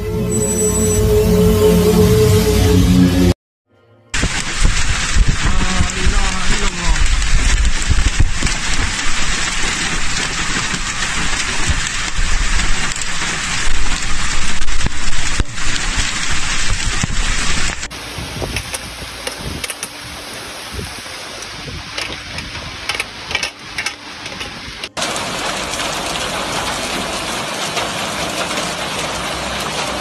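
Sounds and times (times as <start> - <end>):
torrential rain: 4.1 - 30.0
wind rumbling on microphone: 4.2 - 25.0.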